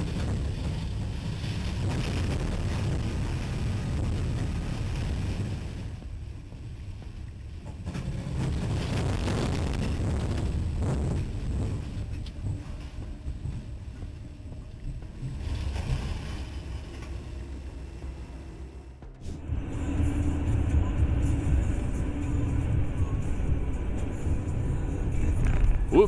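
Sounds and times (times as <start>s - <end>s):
wind noise on microphone: 0.0s - 17.4s
train rumbling: 0.0s - 26.0s.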